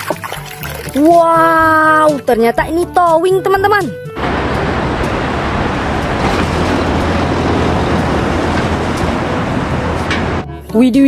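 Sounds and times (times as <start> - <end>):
running water rushing: 0.0 - 1.2, 4.2 - 10.5
low rumble: 4.2 - 10.5.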